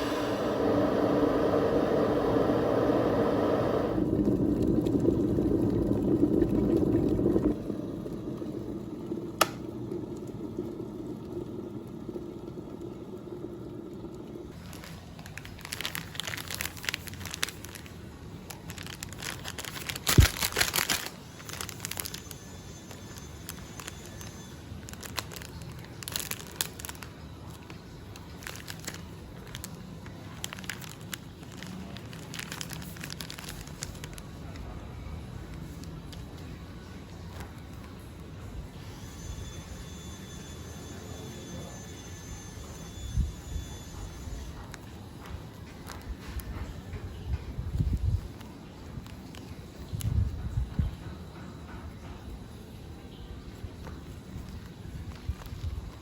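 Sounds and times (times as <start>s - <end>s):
packaging crinkling and rustling: 14.5s - 34.8s, 44.5s - 50.5s, 53.5s - 56.0s.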